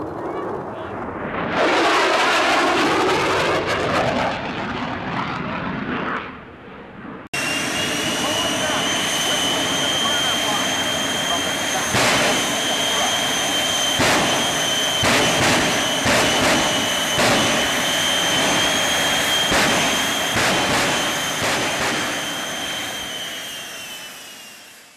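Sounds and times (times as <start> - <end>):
jet engine whine and roar: 0.0 - 24.9.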